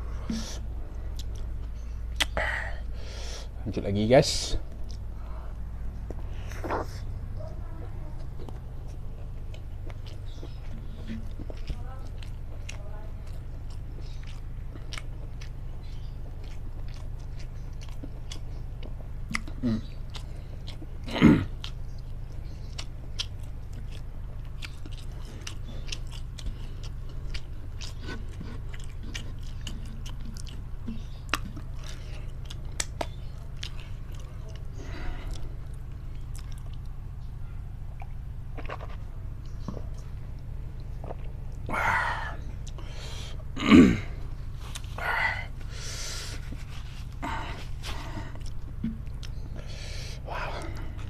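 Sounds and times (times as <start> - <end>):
chewing and biting food: 0.0 - 2.4, 4.6 - 43.6, 44.2 - 51.0
steady low hum: 0.0 - 51.0
wet mouth clicks: 2.1 - 2.4.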